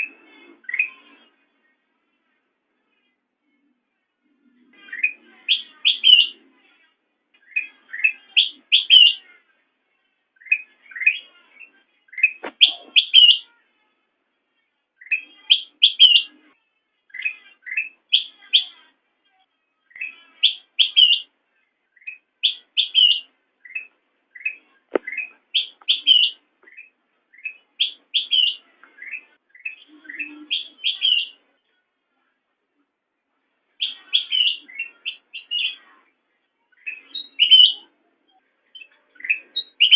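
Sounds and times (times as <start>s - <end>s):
bulbul singing: 4.7s - 6.5s, 7.4s - 9.3s, 10.4s - 13.6s, 15.0s - 16.4s, 19.9s - 31.4s, 33.8s - 35.9s, 36.7s - 37.9s, 38.7s - 39.9s.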